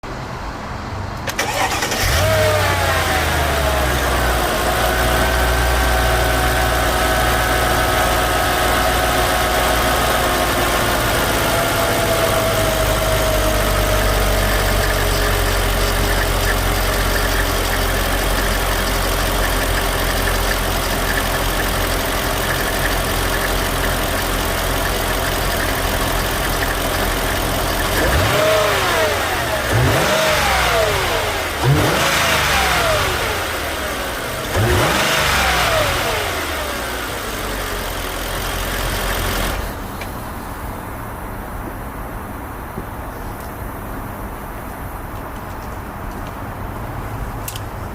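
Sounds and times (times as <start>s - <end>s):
car engine idling and revving: 0.0s - 47.9s.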